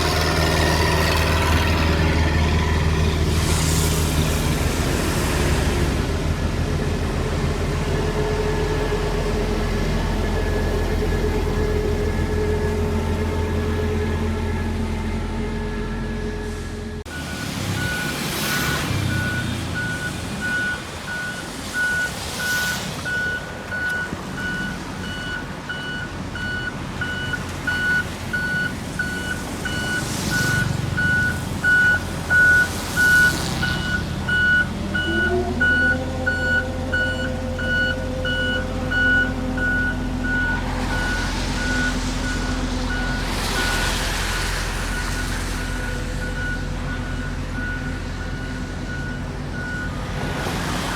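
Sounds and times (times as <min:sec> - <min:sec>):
diesel engine running: 0:00.0 - 0:50.9
reversing alarm beeping: 0:15.5 - 0:44.1, 0:44.9 - 0:50.0.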